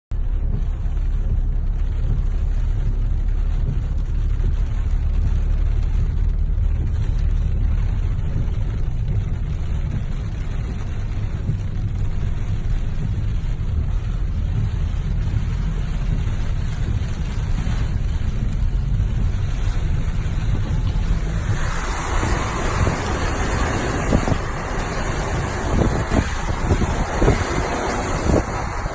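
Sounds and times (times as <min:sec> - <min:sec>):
waterfall rumbling: 0:00.2 - 0:28.9
splashing hiss of water: 0:19.6 - 0:28.9.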